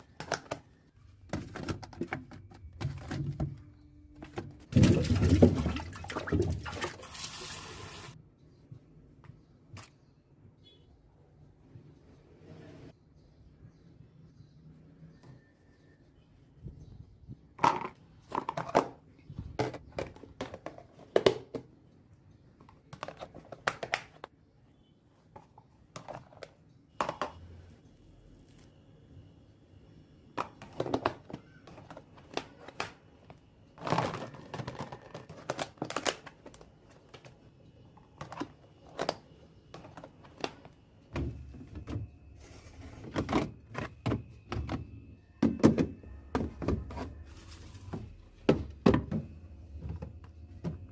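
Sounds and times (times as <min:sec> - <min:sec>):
containers clicking and thunking: 0:00.1 - 0:07.1, 0:17.5 - 0:21.8, 0:25.3 - 0:27.4, 0:30.3 - 0:33.0.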